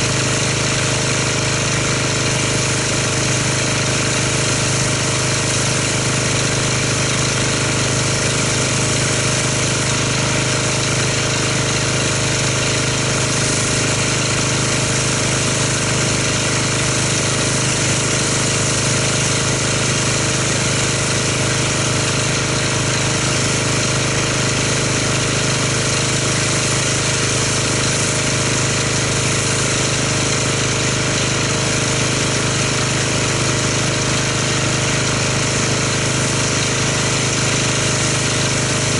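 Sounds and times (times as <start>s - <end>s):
motor and pump humming: 0.0s - 38.9s
pressure washer spray hiss: 0.0s - 38.9s.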